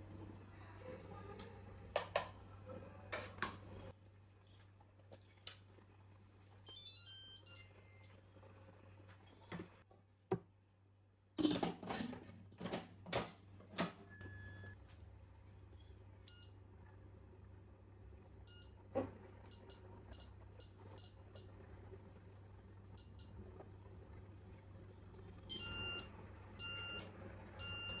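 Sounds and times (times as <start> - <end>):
short electronic beeps: 6.7 - 8.1.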